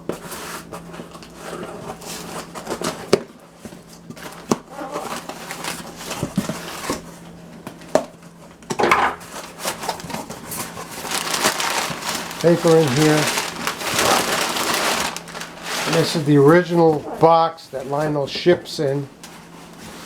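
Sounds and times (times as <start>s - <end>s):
cardboard box being handled: 9.7s - 16.3s.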